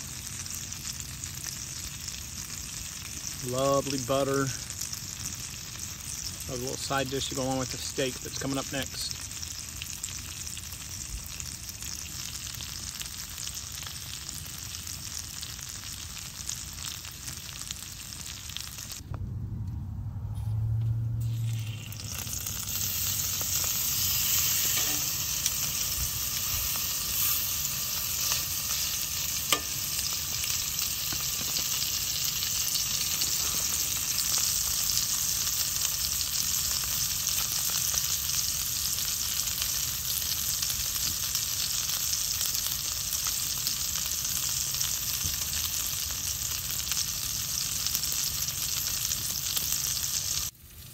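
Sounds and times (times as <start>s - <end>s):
food sizzling in a skillet: 0.0s - 19.0s, 21.2s - 50.9s
low hum: 19.0s - 31.2s.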